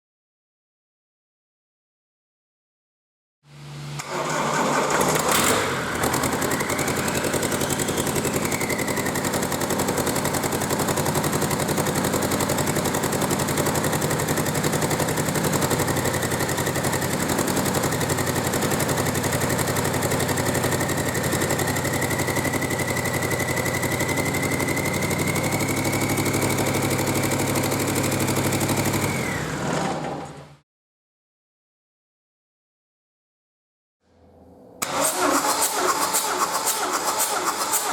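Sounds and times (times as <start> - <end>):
diesel engine starting and idling: 3.8 - 30.6, 34.8 - 37.9.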